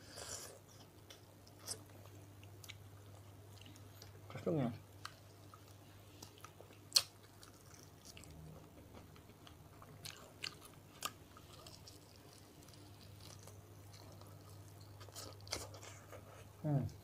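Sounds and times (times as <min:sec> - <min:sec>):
faint chewing and tearing: 0:05.0 - 0:16.5.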